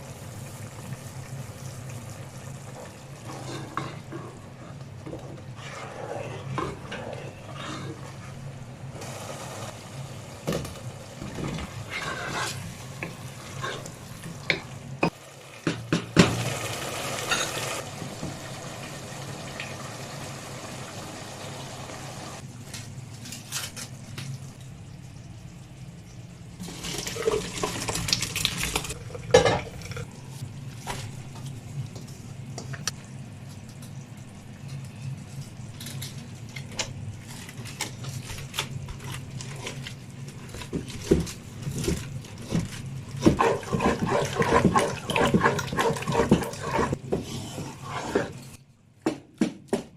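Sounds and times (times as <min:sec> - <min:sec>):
utensil scraping in pan: 0:03.2 - 0:04.8, 0:05.6 - 0:08.4, 0:11.7 - 0:12.8, 0:43.2 - 0:48.6
food sizzling: 0:09.0 - 0:22.4, 0:26.6 - 0:30.4
tap water running: 0:26.6 - 0:30.0.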